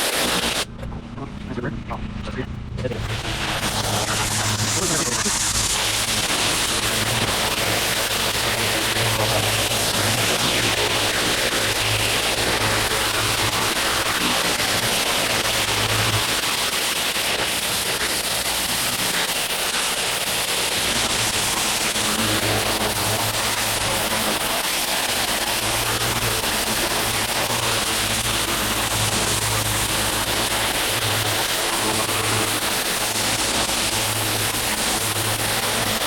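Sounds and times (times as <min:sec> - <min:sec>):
pressure washer spraying water: 0:00.0 - 0:00.7, 0:03.0 - 0:36.0
low engine hum: 0:00.0 - 0:06.2.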